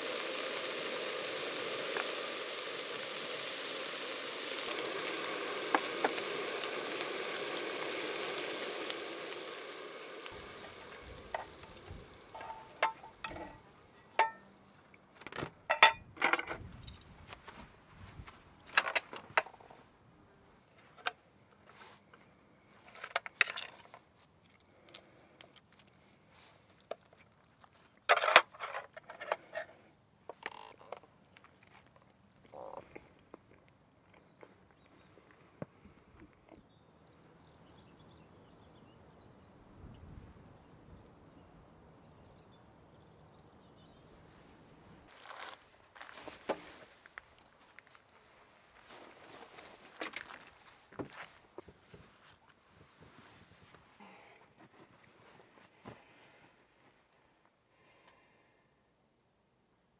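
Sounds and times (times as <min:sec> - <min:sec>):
small hard objects clinking: 0:00.0 - 0:14.4, 0:15.7 - 0:16.4
steady hiss: 0:00.0 - 0:14.5.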